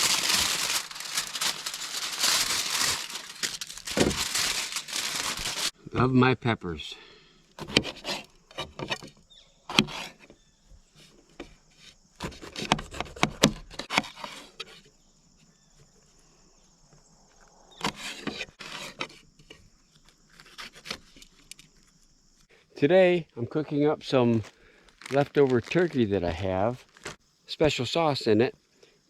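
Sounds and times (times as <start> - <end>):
insect chirring: 0.0 - 5.8, 14.5 - 26.1.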